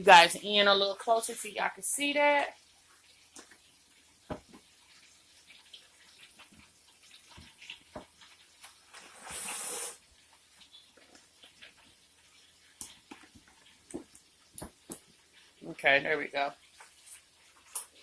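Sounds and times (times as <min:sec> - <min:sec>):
spoon stirring macaroni and cheese: 0:04.3 - 0:08.9, 0:10.2 - 0:15.6
short loud hiss: 0:09.1 - 0:10.0.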